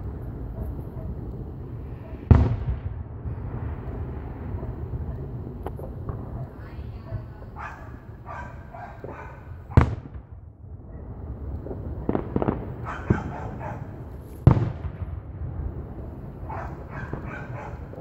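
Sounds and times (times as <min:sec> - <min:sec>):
low rumble: 0:00.0 - 0:08.7
small fireworks pops: 0:00.0 - 0:10.4, 0:11.0 - 0:18.0
fireworks booming: 0:00.0 - 0:18.0.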